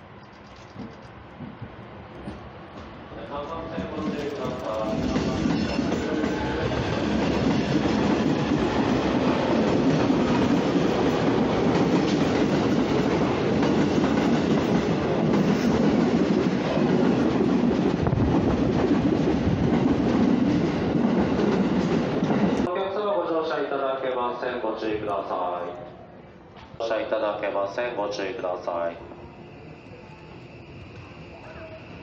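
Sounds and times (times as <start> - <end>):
train wheels rumbling with clickety-clack: 0.0 - 22.7.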